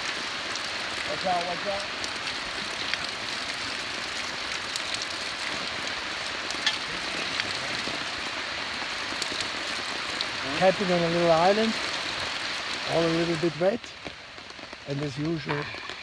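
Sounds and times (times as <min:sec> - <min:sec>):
raindrop ticks: 0:00.0 - 0:16.0
steady rain: 0:00.0 - 0:16.0.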